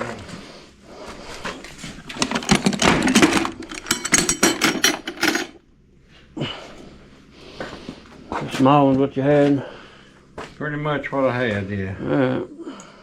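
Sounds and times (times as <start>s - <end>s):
metal tools clinking in toolbox: 2.0s - 5.6s.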